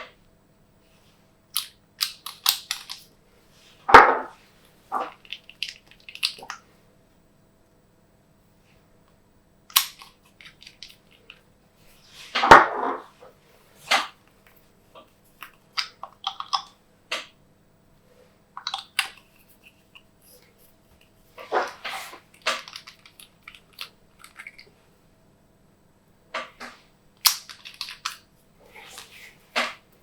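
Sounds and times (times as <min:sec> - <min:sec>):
wet pops and crackles: 0:04.9 - 0:06.6, 0:15.4 - 0:17.3.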